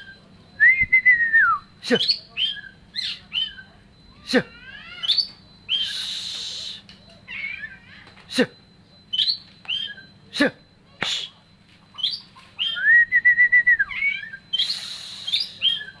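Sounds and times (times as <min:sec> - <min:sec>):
bird singing whistled notes: 0:09.1 - 0:10.2, 0:12.0 - 0:16.0.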